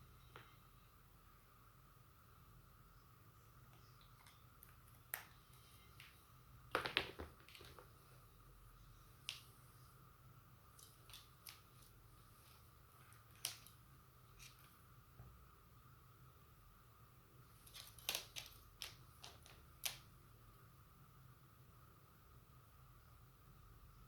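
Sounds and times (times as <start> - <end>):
faint electrical hum: 0.0 - 24.0
small clicks of objects handled: 17.6 - 20.1.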